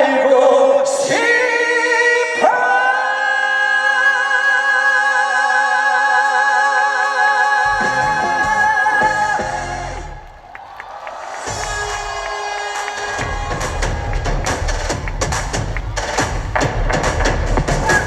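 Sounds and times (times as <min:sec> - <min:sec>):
drum hits: 0:11.4 - 0:18.0
band playing: 0:11.5 - 0:18.0.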